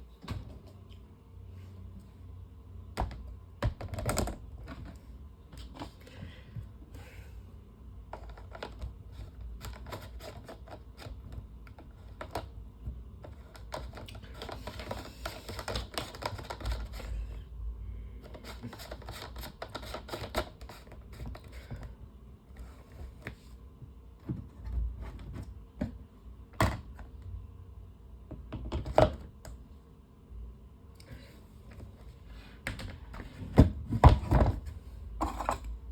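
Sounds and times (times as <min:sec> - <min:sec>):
plastic parts clicking and rattling: 0:13.2 - 0:17.1.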